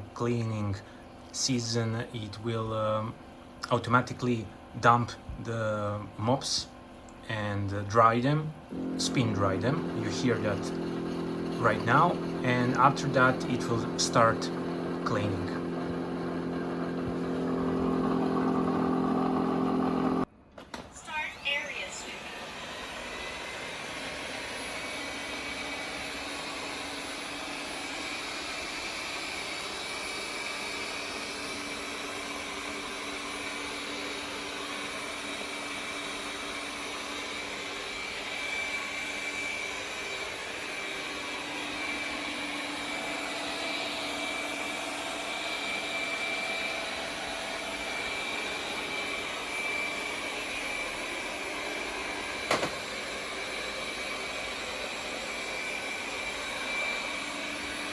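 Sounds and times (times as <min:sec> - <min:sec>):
robot vacuum whirring: 0:08.7 - 0:20.2, 0:21.1 - 0:57.9.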